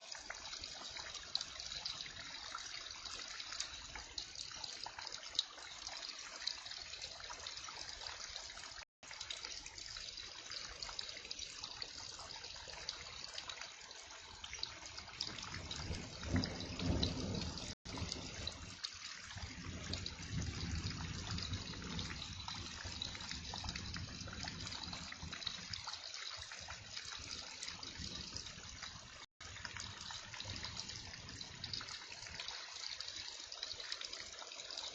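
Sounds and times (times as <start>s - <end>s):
water running and splashing: 0.0s - 34.9s
heavy rain falling: 15.1s - 25.8s.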